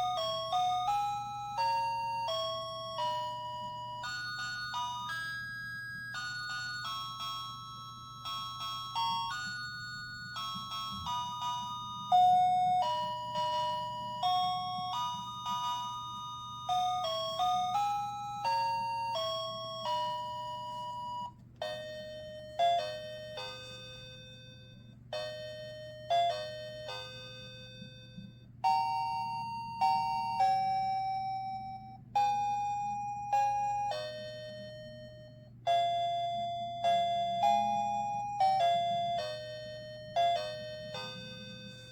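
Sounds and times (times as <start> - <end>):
faint steady hum: 0.0 - 41.9
tinny electronic chiming melody: 0.0 - 41.9.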